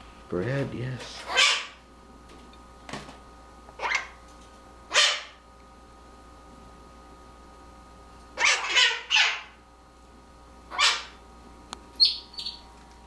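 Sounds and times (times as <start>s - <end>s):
parrot squawking: 1.2s - 1.8s, 3.8s - 4.2s, 4.9s - 5.4s, 8.4s - 9.6s, 10.7s - 11.2s, 12.0s - 12.6s
high thin bird chirps: 12.0s - 12.7s.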